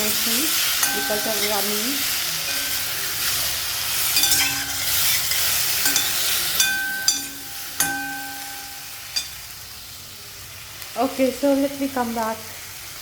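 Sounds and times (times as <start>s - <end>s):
food sizzling in a pan: 0.0s - 13.0s
metal spatula clinking on pan: 0.6s - 3.4s, 4.0s - 9.5s.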